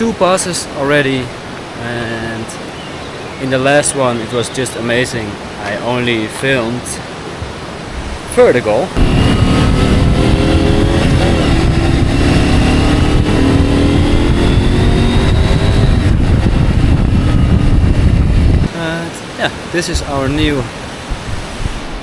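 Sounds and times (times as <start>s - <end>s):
motorcycle engine accelerating: 9.0s - 18.7s
wind rumble on microphone: 9.0s - 18.7s, 20.0s - 22.0s.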